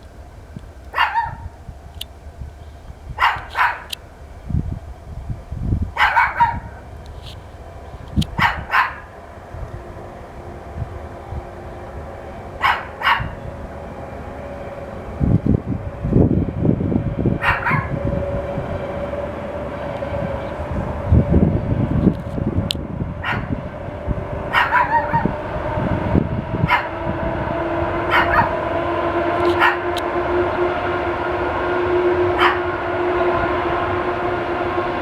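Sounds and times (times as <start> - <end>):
train humming: 0.0 - 35.0
dog barking: 0.9 - 1.5, 3.2 - 4.0, 6.0 - 6.8, 8.4 - 9.1, 12.6 - 13.4, 17.4 - 18.0, 23.2 - 23.6, 24.5 - 25.4, 26.6 - 27.0, 28.1 - 28.6, 29.5 - 29.9, 32.4 - 32.6.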